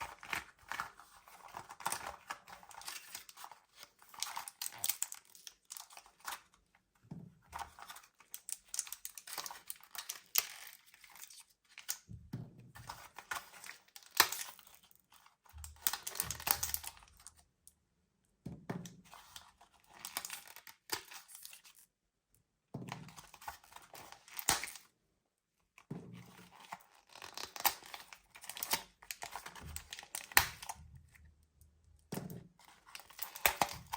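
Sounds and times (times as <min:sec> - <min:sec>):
plastic packaging crinkling: 0:13.0 - 0:17.4, 0:32.6 - 0:33.9.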